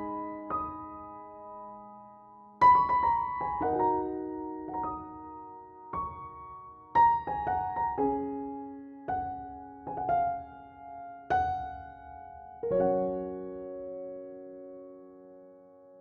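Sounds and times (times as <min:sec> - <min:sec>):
slow gentle piano music: 0:00.0 - 0:16.0.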